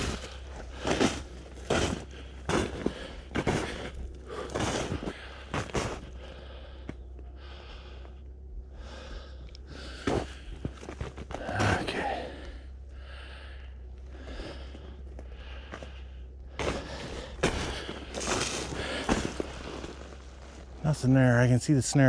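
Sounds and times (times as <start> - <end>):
crunches in snow: 0.0 - 8.1, 8.8 - 22.0
person breathing hard: 0.0 - 20.5.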